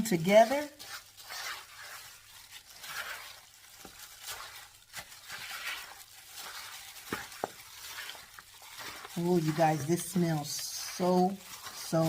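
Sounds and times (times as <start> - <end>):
wet stirring of food in bowl: 0.0 - 12.0.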